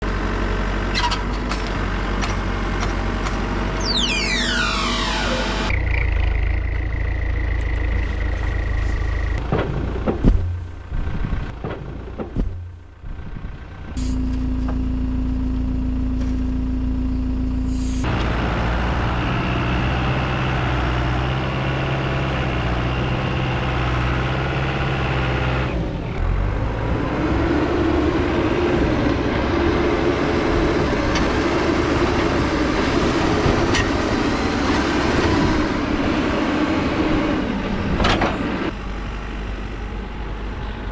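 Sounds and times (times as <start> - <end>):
diesel engines running: 0.0 - 40.9
knocks: 9.4 - 12.8.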